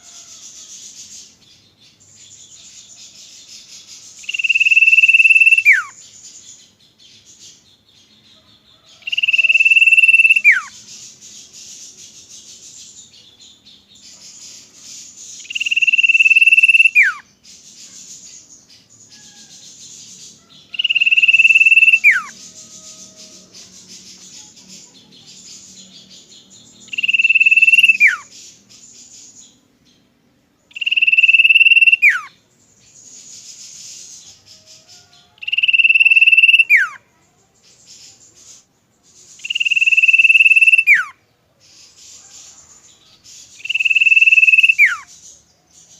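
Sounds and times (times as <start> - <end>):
bird whistling song: 2.0 - 7.7, 9.0 - 29.6, 30.7 - 37.0, 37.6 - 42.4, 43.2 - 45.9
high buzzing insect chorus: 13.9 - 29.6.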